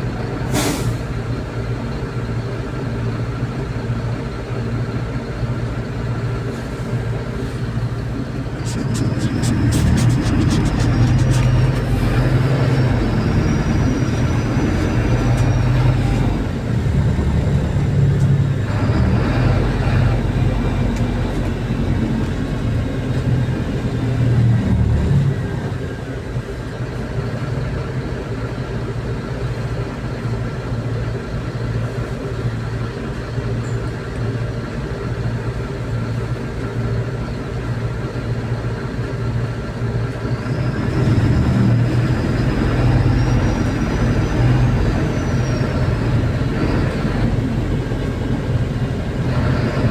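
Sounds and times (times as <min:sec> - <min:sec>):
bus engine hum: 0:00.0 - 0:49.9
road and body noise: 0:05.9 - 0:27.3.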